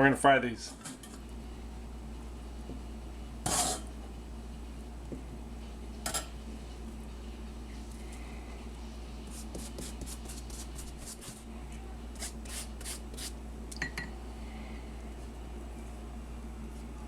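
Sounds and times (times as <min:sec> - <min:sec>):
low electrical hum: 0:00.0 - 0:17.0
soft rubbing and rustling: 0:09.2 - 0:11.5.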